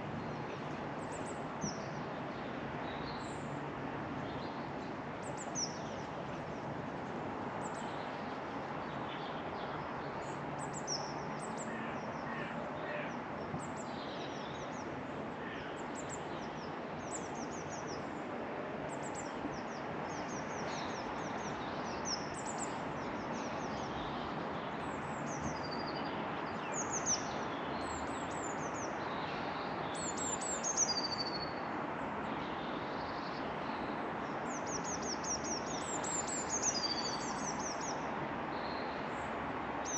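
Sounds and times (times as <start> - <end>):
outdoor background hiss: 0.0 - 39.9
small birds chirping: 34.5 - 39.9.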